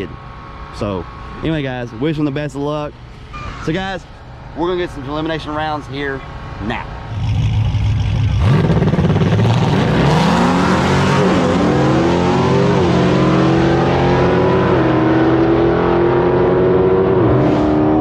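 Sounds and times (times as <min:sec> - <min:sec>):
drag racing car accelerating: 0:07.0 - 0:18.0.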